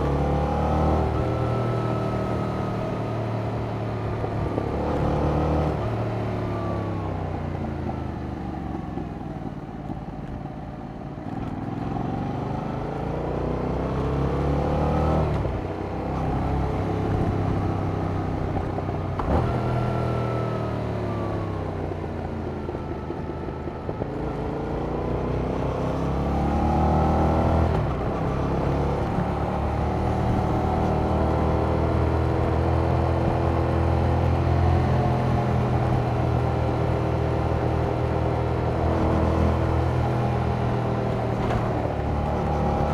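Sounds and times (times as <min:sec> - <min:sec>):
motorcycle engine revving: 0:11.3 - 0:42.9.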